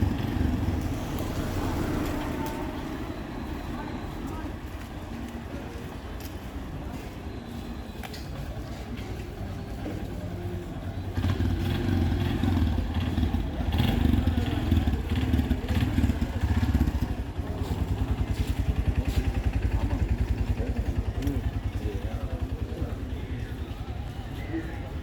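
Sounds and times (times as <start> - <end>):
street traffic: 0.0 - 25.0
small vehicle engine running: 9.6 - 25.0.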